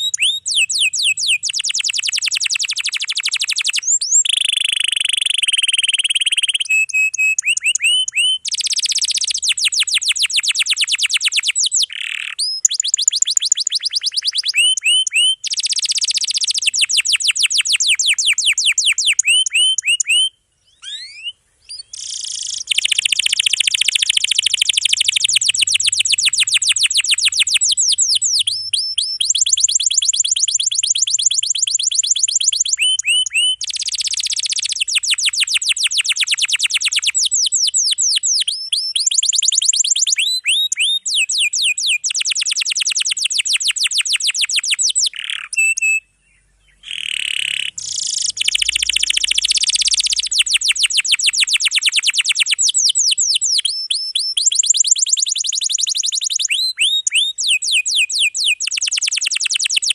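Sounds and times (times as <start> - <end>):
canary singing in rapid rolls: 0.0 - 46.0, 46.8 - 59.9.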